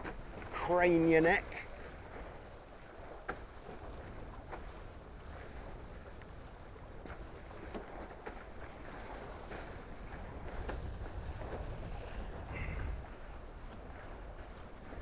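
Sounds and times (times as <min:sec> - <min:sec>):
water rushing past hulls: 0:07.4 - 0:15.0
wind buffeting microphone: 0:08.8 - 0:15.0.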